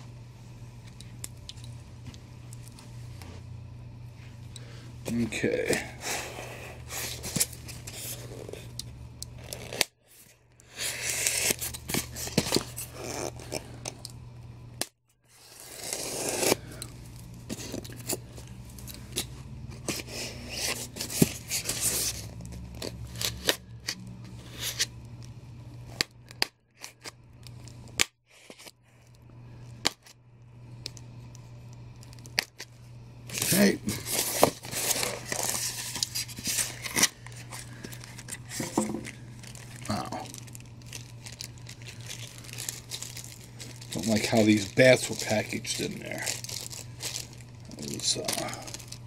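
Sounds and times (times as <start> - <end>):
packaging rustling and tearing: 5.4 - 8.7, 9.4 - 13.9, 15.3 - 16.9, 17.5 - 23.6, 33.3 - 49.0.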